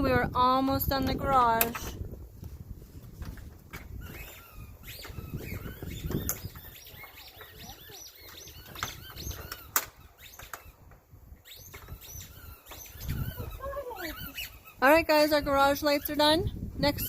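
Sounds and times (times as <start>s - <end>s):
small birds chirping: 3.8s - 17.0s.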